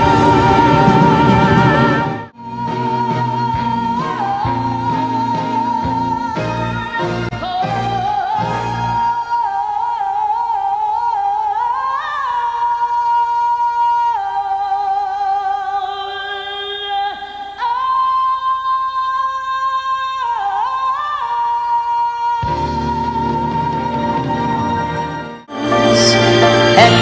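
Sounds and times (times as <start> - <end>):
singing with vibrato: 0.0 - 27.0
light musical backing: 22.4 - 27.0.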